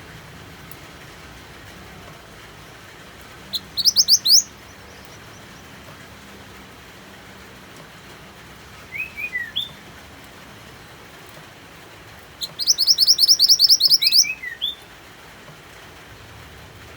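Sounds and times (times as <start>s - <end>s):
steady rain: 0.0s - 16.9s
songbird chirps and trill: 3.4s - 5.8s, 8.9s - 9.8s, 12.4s - 14.9s.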